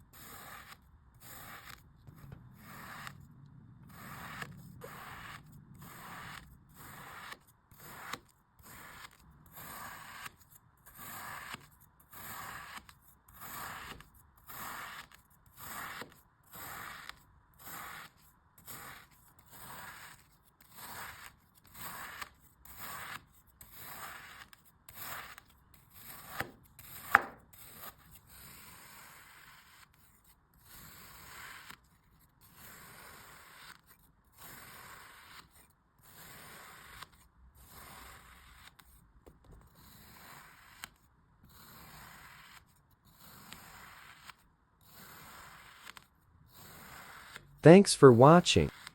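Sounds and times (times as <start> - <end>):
scraping rasp of sand being cut: 0.1 - 1.8, 3.9 - 29.8, 41.6 - 47.4.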